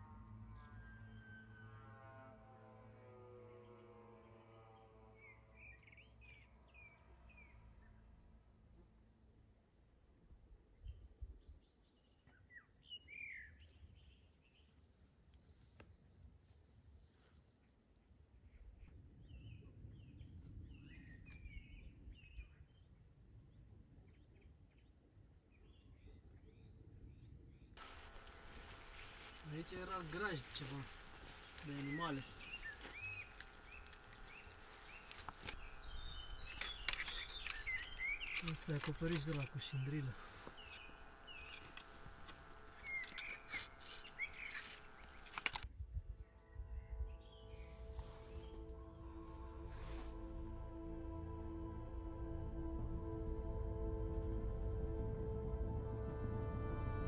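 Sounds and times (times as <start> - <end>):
faint outdoor background: 0.0 - 57.0
bird chirping: 27.8 - 45.6
high thin whine: 27.8 - 45.6, 46.6 - 57.0
faint low rumble: 27.8 - 57.0.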